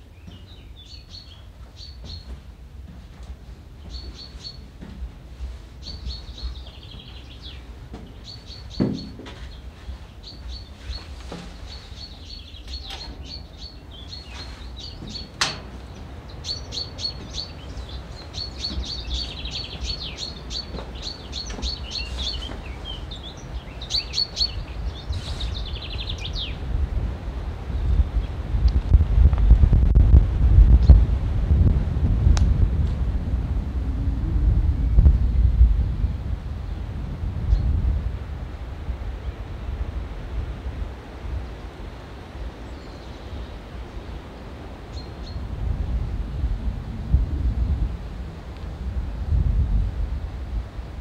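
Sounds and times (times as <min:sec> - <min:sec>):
songbirds singing: 0:00.0 - 0:26.8, 0:34.8 - 0:37.9, 0:39.0 - 0:46.1
wind rumble on microphone: 0:00.0 - 0:51.0
single knock: 0:08.8 - 0:09.4.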